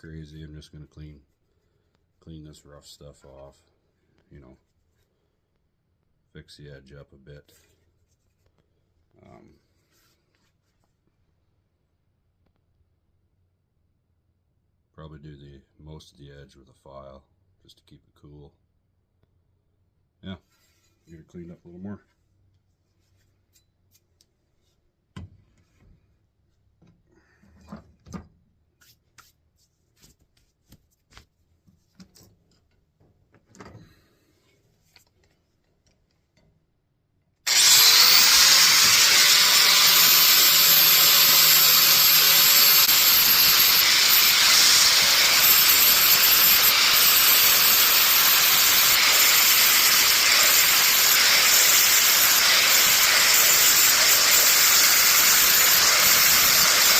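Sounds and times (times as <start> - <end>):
angle grinder grinding metal: 37.5 - 56.9.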